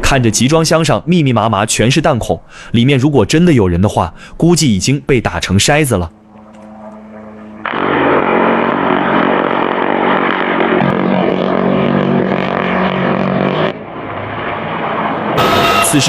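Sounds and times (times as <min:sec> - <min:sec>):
helicopter engine and rotor: 0:06.1 - 0:16.0.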